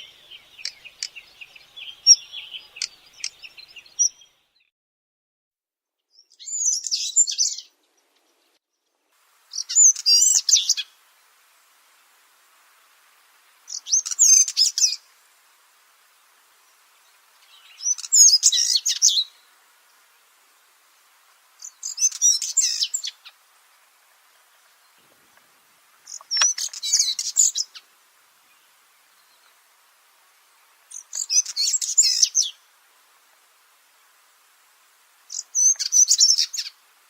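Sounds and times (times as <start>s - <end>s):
bird warbling song: 0.0s - 4.7s, 6.1s - 8.6s, 9.5s - 11.0s, 13.7s - 15.1s, 16.6s - 19.4s, 21.6s - 23.4s, 26.0s - 27.9s, 30.9s - 32.6s, 35.3s - 36.8s.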